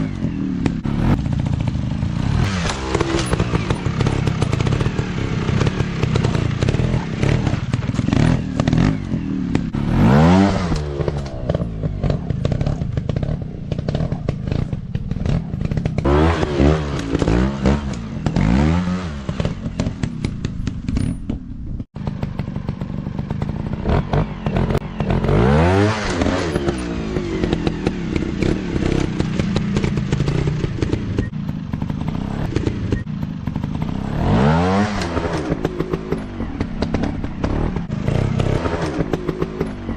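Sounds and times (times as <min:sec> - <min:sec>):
dirt bike engine revving: 0:00.0 - 0:21.2, 0:21.9 - 0:39.9
knocks and clatter: 0:00.1 - 0:09.9, 0:26.0 - 0:39.9.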